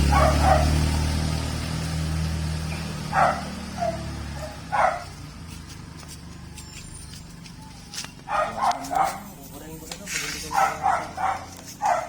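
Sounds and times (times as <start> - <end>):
dog barking in short yelps: 8.3 - 9.2, 10.6 - 12.0.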